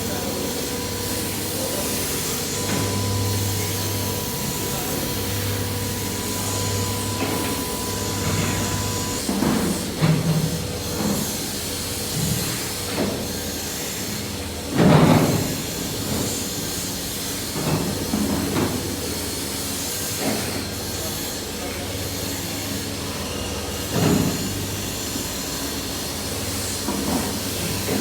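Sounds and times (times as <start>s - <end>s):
thin machine whine: 0.0s - 9.3s.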